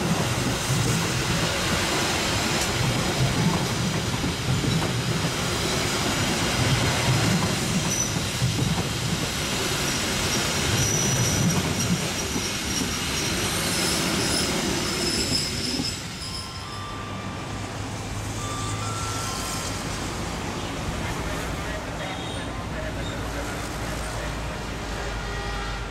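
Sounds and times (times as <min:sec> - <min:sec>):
train wheels rumbling on rails: 0:00.0 - 0:25.9
high-pitched wheel squeals: 0:13.5 - 0:17.5, 0:18.4 - 0:20.1.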